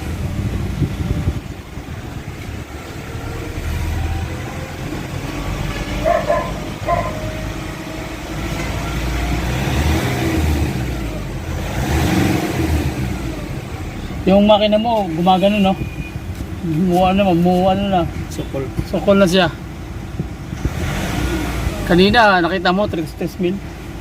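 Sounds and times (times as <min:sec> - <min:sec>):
car engine rumble from inside cabin: 0:00.0 - 0:15.6.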